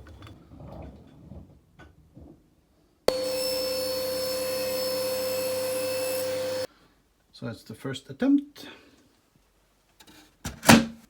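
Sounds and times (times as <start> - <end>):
power tool motor running: 3.1 - 6.7.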